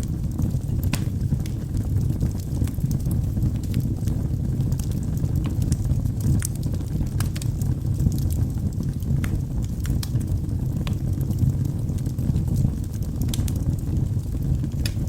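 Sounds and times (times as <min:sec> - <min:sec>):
burning logs crackling and popping: 0:00.0 - 0:15.0
low roar of flames: 0:00.0 - 0:15.0.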